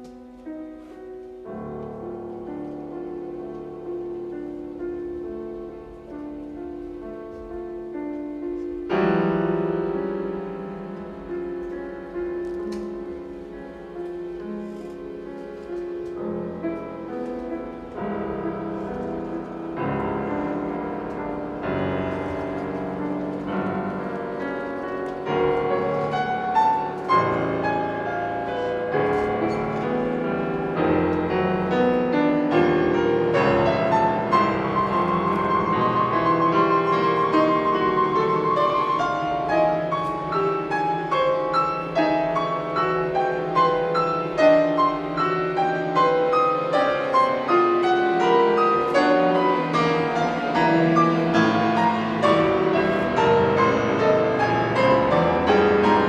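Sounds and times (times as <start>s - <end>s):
piano: 0.0s - 56.0s
string orchestra: 12.4s - 56.0s.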